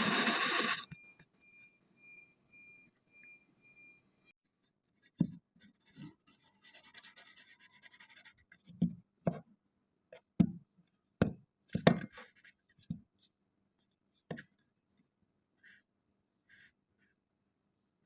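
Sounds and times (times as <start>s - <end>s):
tool scraping sand: 0.0s - 0.9s.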